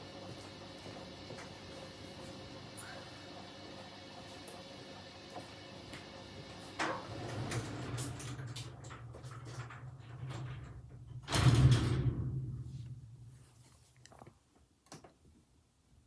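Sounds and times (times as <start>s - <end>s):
washing machine motor hum: 0.0s - 11.4s.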